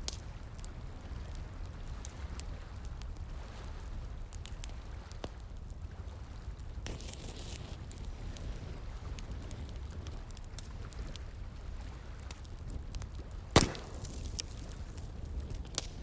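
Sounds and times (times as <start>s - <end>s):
campfire crackling: 0.0s - 16.0s
low steady fire rumble: 0.0s - 16.0s
loud fire pop: 13.5s - 15.0s.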